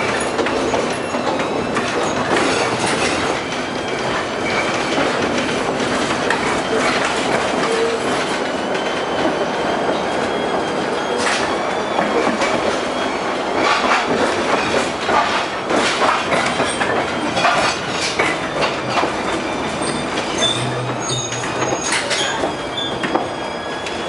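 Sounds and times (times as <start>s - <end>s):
tram running on track: 0.0s - 24.0s
wheels clacking over rail joints: 0.0s - 24.0s
high wheel squeal: 6.4s - 14.8s, 16.4s - 24.0s.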